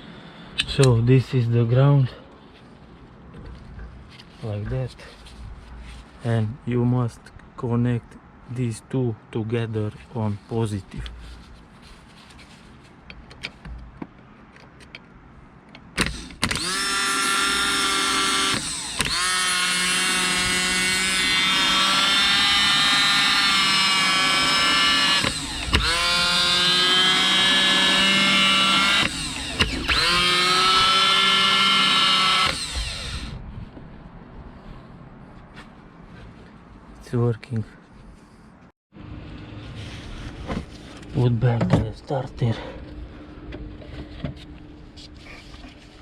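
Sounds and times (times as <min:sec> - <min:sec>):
starter motor whine: 0:16.0 - 0:33.4.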